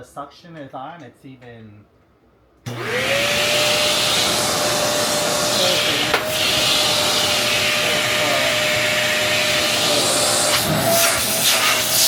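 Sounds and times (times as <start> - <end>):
suction noise: 2.7 - 12.0
vacuum cleaner motor whine: 2.7 - 12.0.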